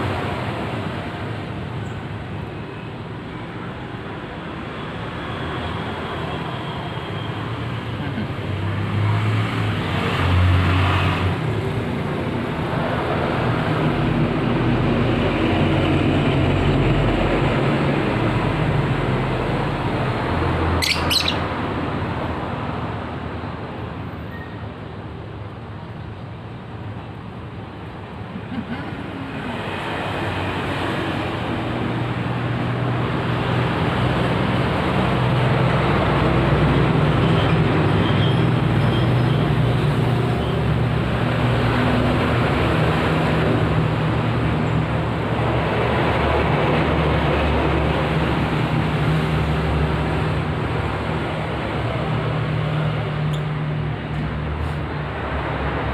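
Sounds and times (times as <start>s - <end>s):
road traffic rumbling: 0.0s - 55.9s
high bird chirp: 20.8s - 21.5s.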